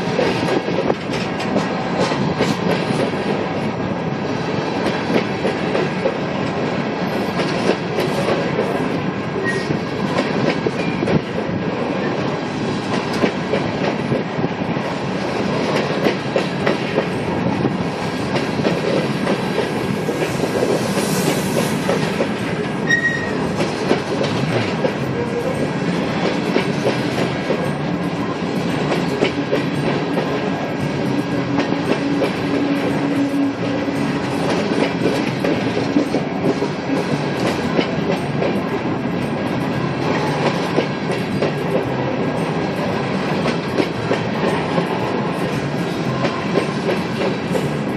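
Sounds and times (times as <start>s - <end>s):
train cars rolling past: 0.0s - 47.9s
wheel squeals: 22.8s - 23.5s.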